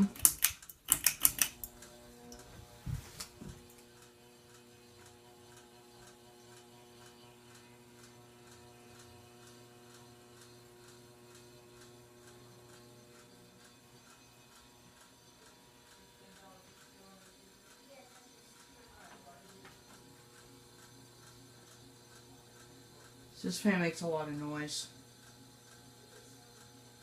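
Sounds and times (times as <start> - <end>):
fan ticking: 0.0 - 2.6
ceiling fan motor hum: 0.0 - 27.0.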